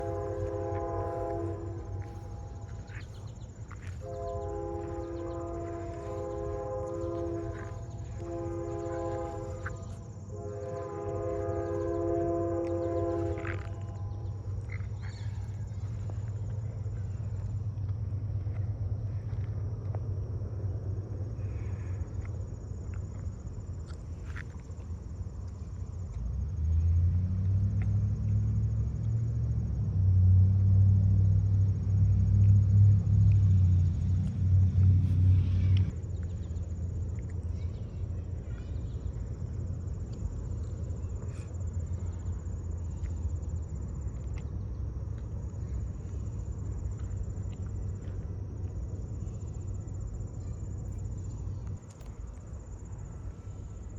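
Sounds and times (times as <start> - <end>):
freight train rolling past: 0.0 - 22.8
low droning hum: 0.0 - 27.4
crickets chirring: 0.0 - 53.9.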